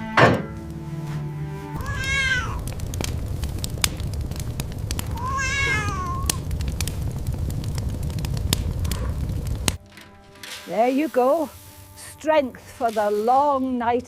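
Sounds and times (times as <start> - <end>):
steady low rumble: 0.5 - 12.8
kitten meowing: 1.8 - 2.7, 5.1 - 6.4.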